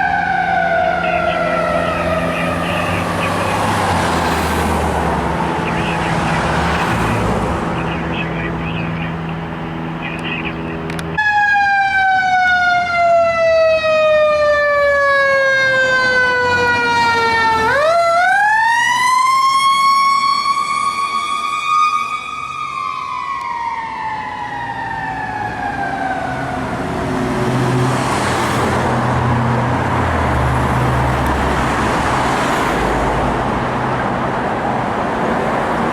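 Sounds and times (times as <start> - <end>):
heavy truck engine: 0.0 - 11.2, 25.4 - 35.9
fire engine siren wailing: 0.0 - 35.9
road traffic rumble: 0.0 - 35.9.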